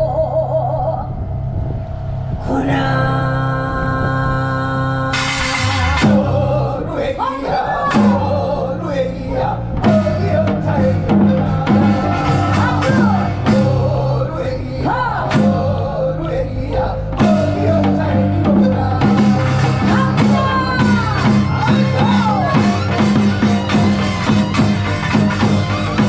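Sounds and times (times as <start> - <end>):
folk song with sliding vocals: 2.3 - 26.0
band with drum kit: 5.1 - 6.8, 7.8 - 16.3, 16.9 - 26.0.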